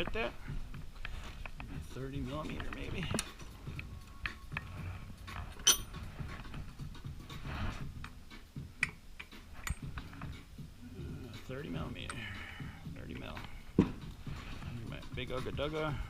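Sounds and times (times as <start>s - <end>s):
metal tools clinking: 5.5s - 6.0s, 9.6s - 9.9s
sharp ringing clink: 5.6s - 6.0s.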